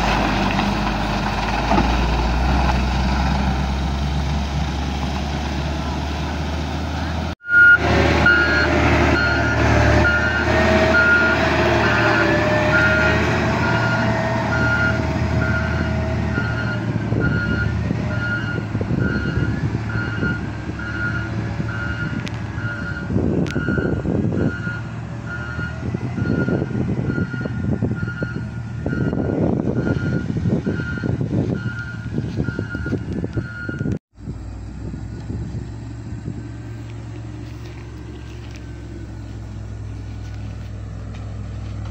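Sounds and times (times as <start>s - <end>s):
diesel engine running: 0.0s - 41.9s
truck reversing alarm beeps: 7.4s - 34.0s.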